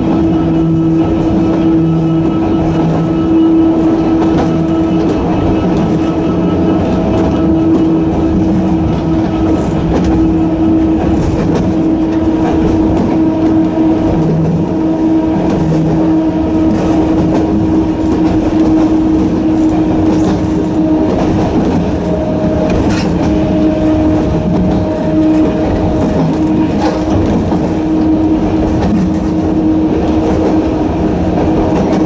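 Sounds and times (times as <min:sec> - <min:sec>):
electric train motor whine: 0:00.0 - 0:32.0
train running rumble: 0:00.0 - 0:32.0.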